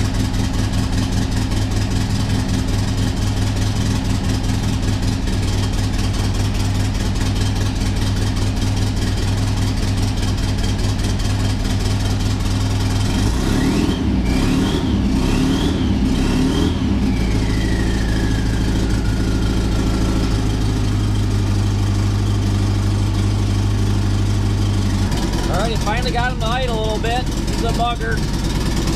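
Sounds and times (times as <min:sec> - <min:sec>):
car engine idling and revving: 0:00.0 - 0:28.9
engine whine falling in pitch: 0:16.8 - 0:22.2.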